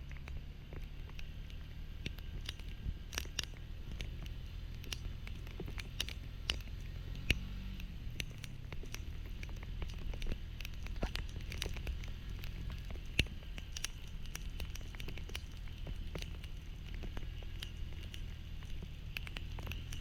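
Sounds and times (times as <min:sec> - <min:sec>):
engine idling hum: 0:00.0 - 0:20.0
raindrops pattering: 0:00.0 - 0:20.0.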